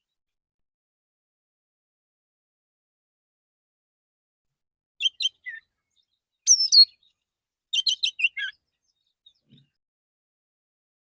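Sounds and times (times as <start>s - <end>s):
bird whistling and chirping: 5.0s - 5.7s, 6.5s - 7.1s, 7.8s - 8.6s.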